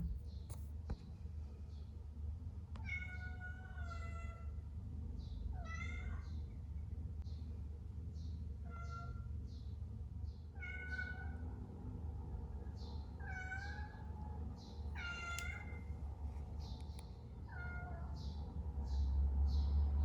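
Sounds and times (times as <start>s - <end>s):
steady low hum: 0.0s - 2.5s
cat meowing: 13.2s - 14.0s, 15.0s - 15.8s, 17.5s - 18.1s.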